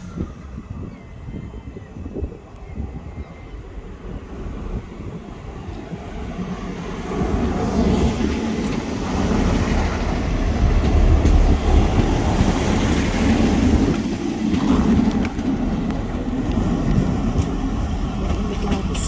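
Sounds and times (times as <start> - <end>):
train rumbling past on rails: 0.0 - 19.0.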